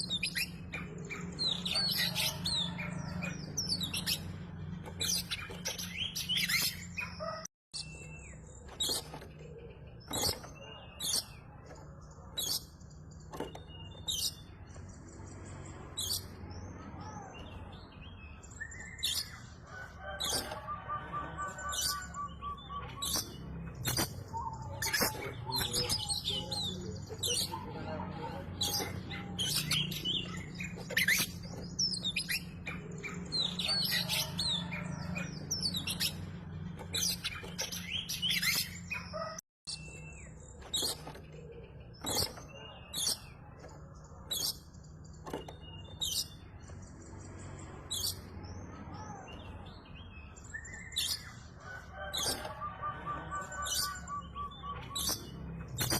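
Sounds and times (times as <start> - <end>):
bird chirping and whistling: 0.0 - 4.4, 18.2 - 19.4, 20.0 - 27.7, 28.6 - 41.0, 52.0 - 55.9.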